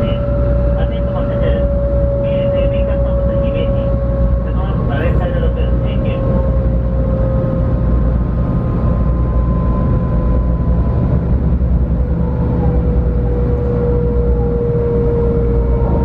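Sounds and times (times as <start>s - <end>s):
train motor whine: 0.0s - 16.0s
train running rumble: 0.0s - 16.0s.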